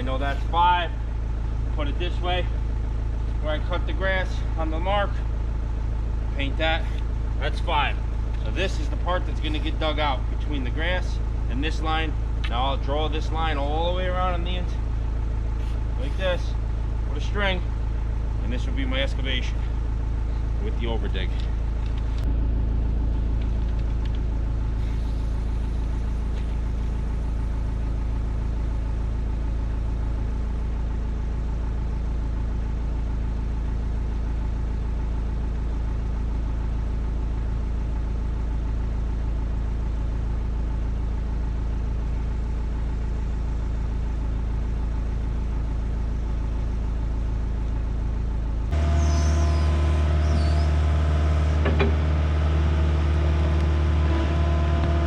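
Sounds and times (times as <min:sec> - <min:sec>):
heavy diesel engine running: 0:00.0 - 0:55.0
short squeaks: 0:48.8 - 0:50.8.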